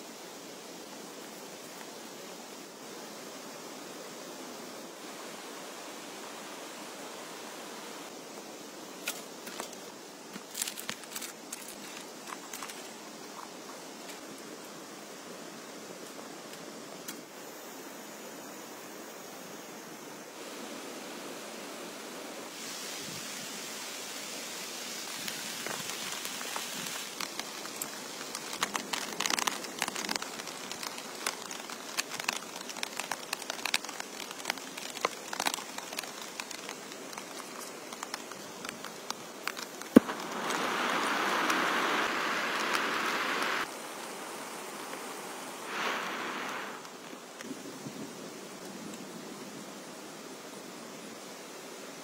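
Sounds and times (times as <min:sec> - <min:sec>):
heavy rain falling: 0:24.5 - 0:47.4.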